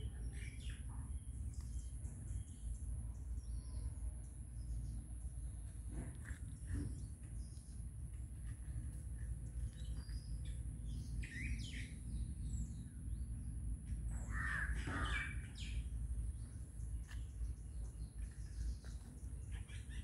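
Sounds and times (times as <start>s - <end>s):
birds calling: 0.0s - 20.0s
steady low rumble: 0.0s - 20.0s
harsh bird call: 14.2s - 15.9s.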